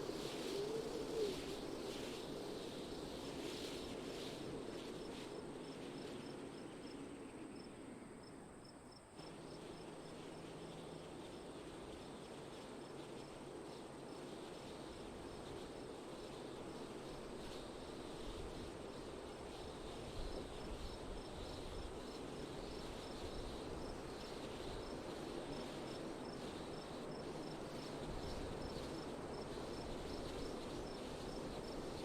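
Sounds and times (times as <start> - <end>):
wind blowing in gusts: 0.0 - 8.5
faint insect chirping: 0.0 - 32.0.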